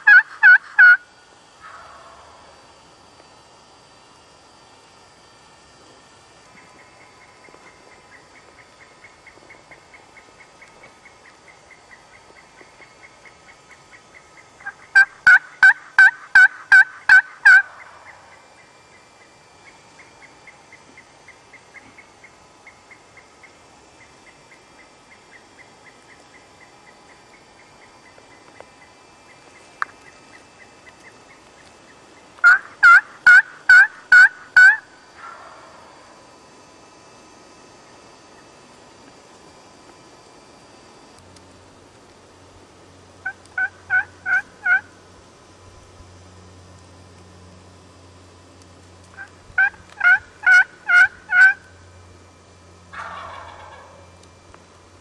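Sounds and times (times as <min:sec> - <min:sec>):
turkey yelps: 0:00.0 - 0:01.0, 0:01.6 - 0:02.5, 0:14.6 - 0:18.4, 0:32.4 - 0:35.8, 0:43.2 - 0:44.9, 0:49.2 - 0:51.6, 0:52.9 - 0:54.0
faint outdoor background hiss: 0:00.0 - 0:55.0
insect chirping: 0:06.5 - 0:36.3.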